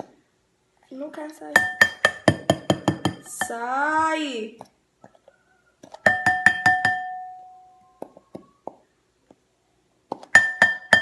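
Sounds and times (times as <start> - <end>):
glass bowl clinks: 1.6 - 3.6, 6.0 - 7.7, 10.4 - 11.0.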